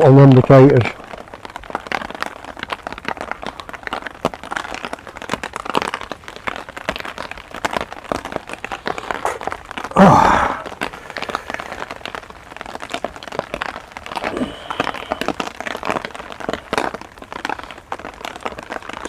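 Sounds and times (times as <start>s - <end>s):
heavy rain on umbrella: 0.0s - 19.0s
rustles: 4.5s - 19.0s.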